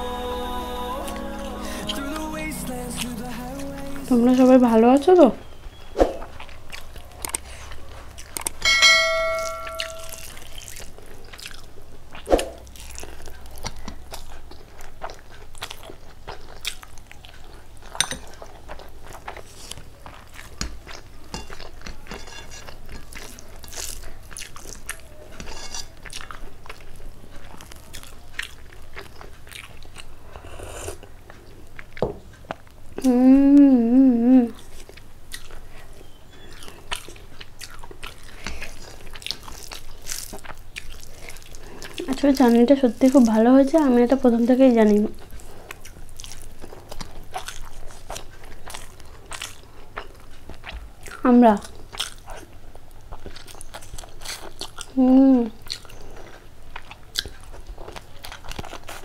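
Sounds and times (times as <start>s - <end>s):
hummed wavering voice: 0.0s - 4.7s
person chewing food: 5.5s - 59.0s
brief ringing tone: 8.7s - 10.3s.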